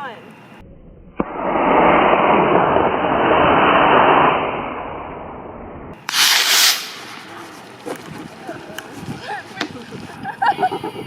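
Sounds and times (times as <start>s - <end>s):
rocket motor roaring: 0.9s - 8.1s
short burst of hiss: 6.0s - 7.5s.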